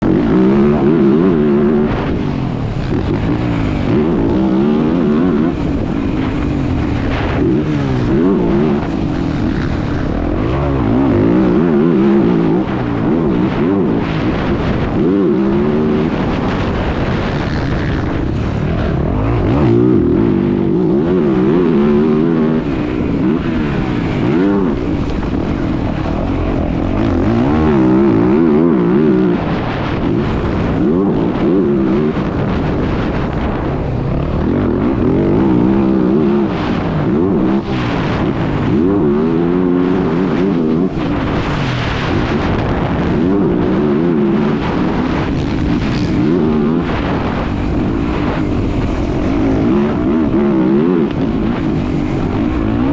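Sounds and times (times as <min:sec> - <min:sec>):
motocross bike engine revving: 0:00.0 - 0:52.9
track noise: 0:00.0 - 0:52.9
wind noise: 0:00.0 - 0:52.9.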